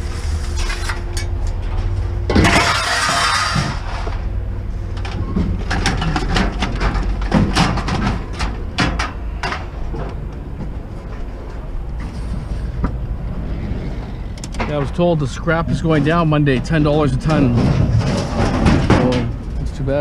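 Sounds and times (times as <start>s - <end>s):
vehicle engine rumble: 0.0s - 20.0s
sharp knocks and rattles: 5.0s - 10.2s, 15.6s - 19.6s.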